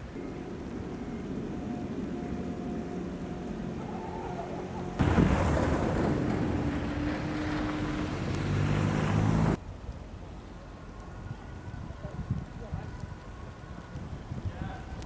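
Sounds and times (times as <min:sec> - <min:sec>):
low steady hum: 0:00.0 - 0:15.0
wind rushing over microphone: 0:05.0 - 0:09.6, 0:11.1 - 0:15.0.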